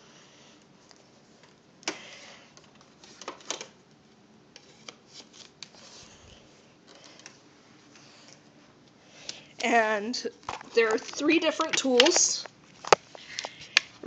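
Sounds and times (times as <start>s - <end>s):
plastic attachments clicking: 10.5s - 13.9s.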